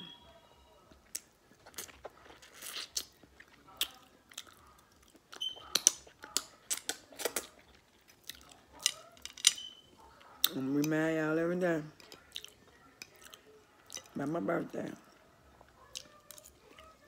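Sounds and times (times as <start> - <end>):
person chewing with mouth smacks: 1.0 - 8.6, 12.0 - 14.2.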